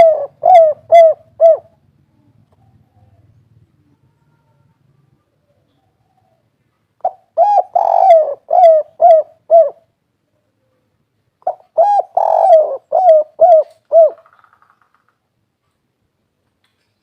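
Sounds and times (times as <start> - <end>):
dove cooing: 0.0 - 1.8, 5.2 - 9.9, 11.4 - 14.4.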